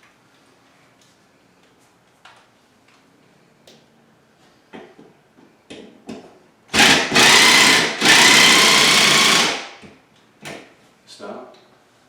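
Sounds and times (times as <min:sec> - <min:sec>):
power drill driving screw into wood: 0:06.7 - 0:09.8.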